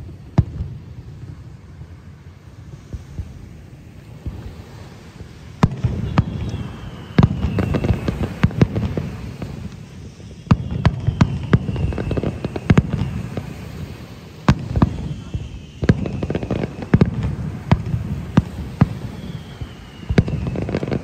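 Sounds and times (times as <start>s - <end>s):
fireworks crackling: 0.0s - 21.0s.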